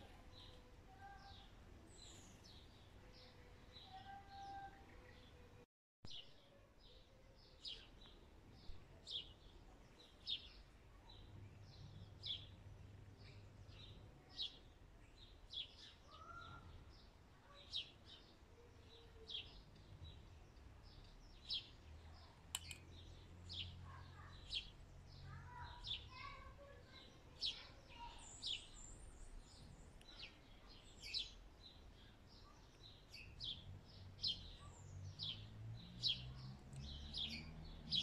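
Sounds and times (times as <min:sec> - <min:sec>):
small bird chirping: 0:17.5 - 0:38.0.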